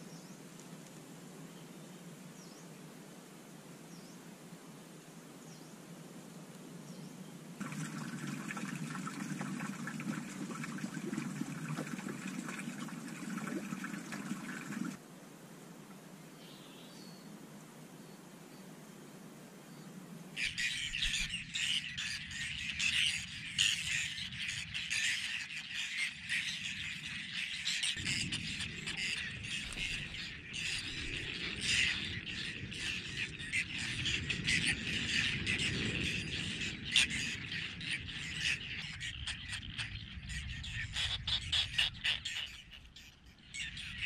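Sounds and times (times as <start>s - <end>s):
birds chirping and squawking: 20.4s - 44.0s.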